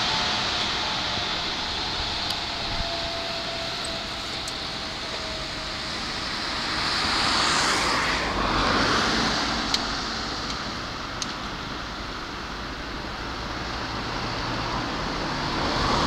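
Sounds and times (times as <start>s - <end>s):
faint steady whine: 0.0s - 7.4s
electric train passing: 0.0s - 16.0s.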